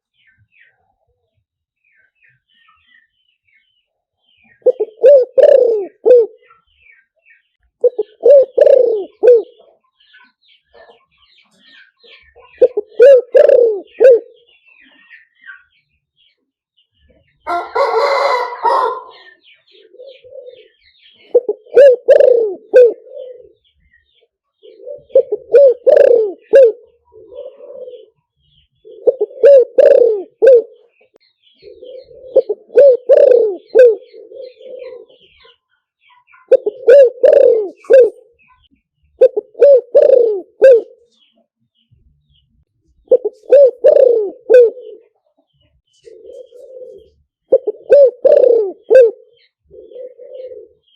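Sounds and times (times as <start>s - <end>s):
dove cooing: 4.5s - 6.6s, 7.8s - 9.8s, 12.0s - 15.0s, 17.5s - 23.7s, 24.6s - 35.6s, 36.4s - 38.5s, 39.2s - 41.2s, 43.0s - 45.2s, 45.9s - 50.9s
faint high bird chirps: 25.9s - 39.3s.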